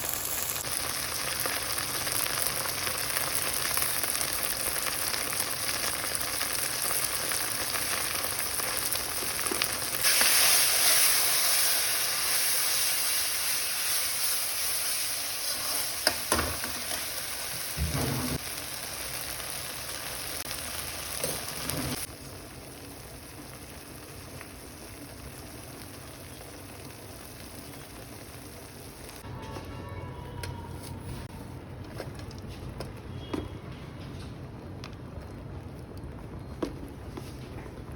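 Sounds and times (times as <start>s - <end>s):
food sizzling in oil: 0.0s - 29.2s.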